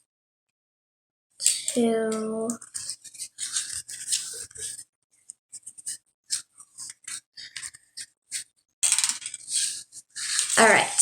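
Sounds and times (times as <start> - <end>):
wire scraping and rustling: 2.6 - 4.9, 5.5 - 11.0.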